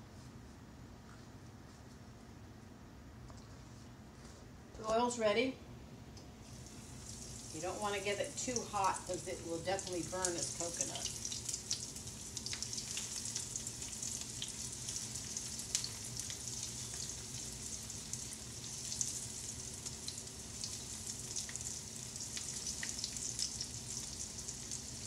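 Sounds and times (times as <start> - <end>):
shrimp sizzling in oil: 6.4 - 25.0
crackles and pops of frying: 6.5 - 25.0.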